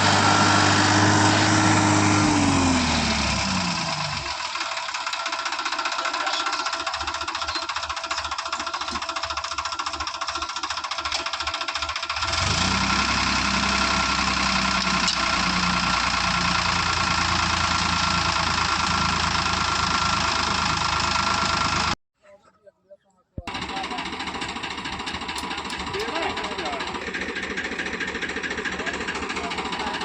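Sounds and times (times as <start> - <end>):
diesel engine knocking: 0.0 - 22.0, 23.5 - 30.0.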